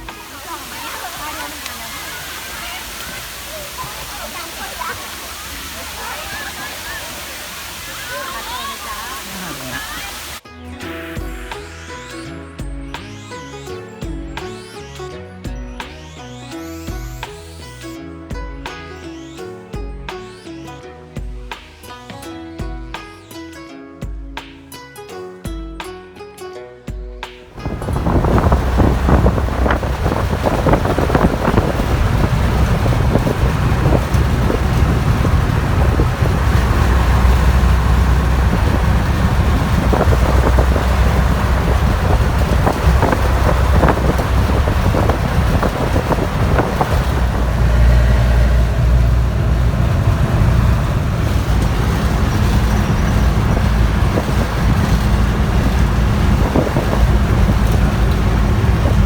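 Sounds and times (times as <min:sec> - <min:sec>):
vehicle engine hum: 0:00.0 - 0:10.4, 0:27.5 - 0:59.0.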